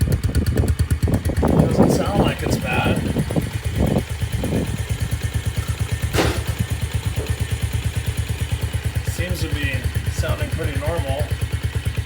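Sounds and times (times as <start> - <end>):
small engine idling: 0.0 - 12.0
sharp clack: 6.1 - 7.5.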